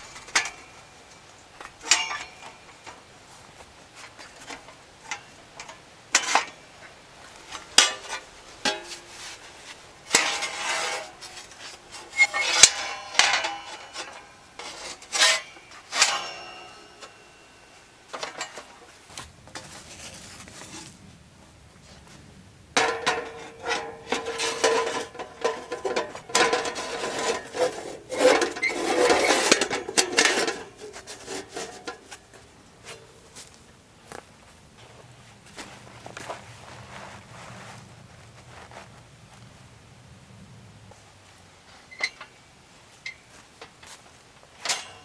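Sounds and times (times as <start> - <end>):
metal cookware clanking: 0.0 - 3.0, 7.5 - 9.4, 10.0 - 18.9, 22.8 - 32.2, 44.6 - 45.0
scraping against metal: 0.0 - 21.0, 22.8 - 33.5, 44.6 - 45.0.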